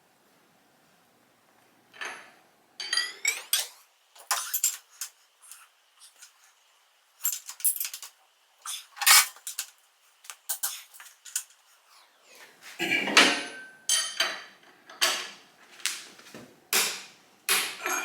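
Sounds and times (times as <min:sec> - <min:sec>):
metal tools clinking: 0:02.8 - 0:05.1, 0:07.2 - 0:08.2, 0:09.0 - 0:09.7.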